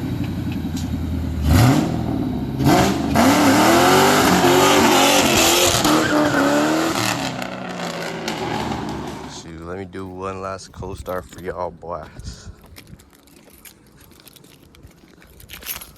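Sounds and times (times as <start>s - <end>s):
car engine revving hard: 1.2s - 9.4s.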